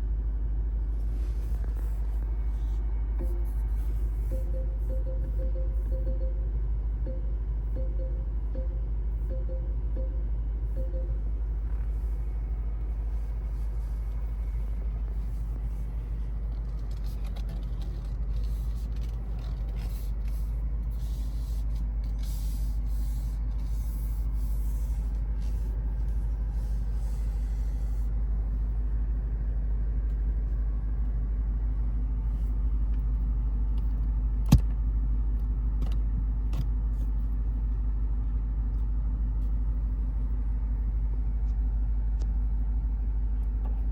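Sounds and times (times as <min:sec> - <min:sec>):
car engine rumble: 0:00.0 - 0:43.9.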